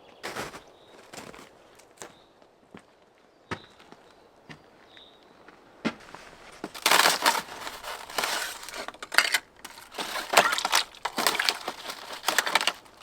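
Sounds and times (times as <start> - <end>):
footsteps on crunchy surface: 0.2 - 2.2, 5.9 - 13.0.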